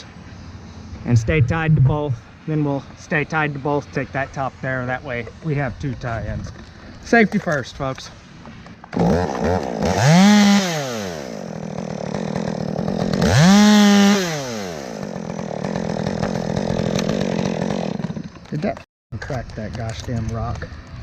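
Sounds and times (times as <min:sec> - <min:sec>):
chainsaw revving: 0:08.9 - 0:18.6.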